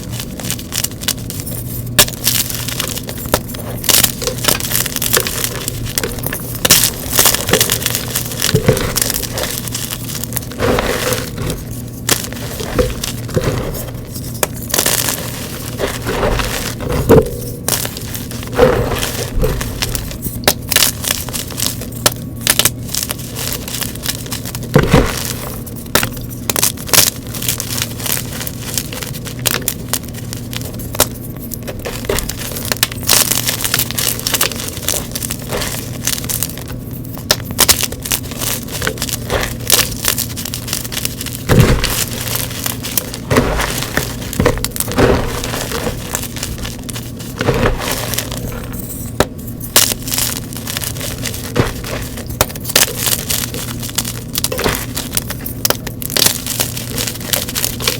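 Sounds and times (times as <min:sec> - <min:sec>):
chalk crunching and crackling: 0:00.0 - 0:57.9
low hum: 0:00.0 - 0:57.9.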